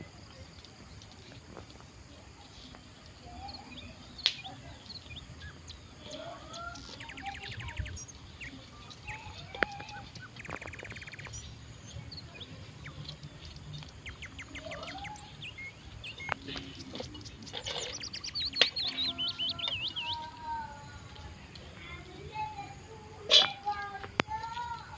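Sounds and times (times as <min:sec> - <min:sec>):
small birds chirping: 0:00.0 - 0:24.9
warbling bird song: 0:02.0 - 0:21.6
buzzy bird trill: 0:03.2 - 0:21.4.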